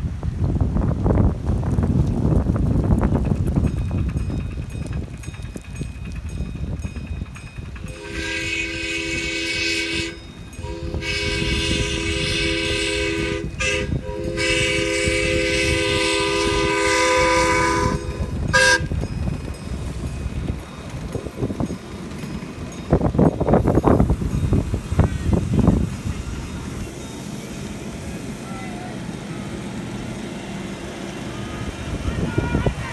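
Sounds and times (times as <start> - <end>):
wind noise: 0.0 - 28.2, 31.3 - 32.9
steam locomotive chime whistle: 6.3 - 29.5, 31.2 - 32.9.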